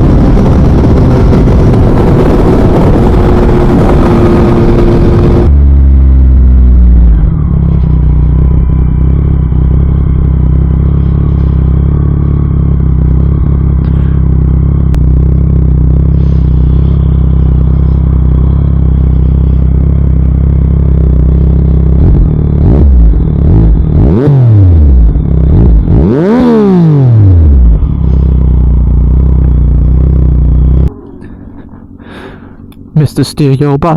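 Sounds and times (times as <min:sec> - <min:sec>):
motorcycle engine idling: 0:00.0 - 0:26.6, 0:27.2 - 0:33.0.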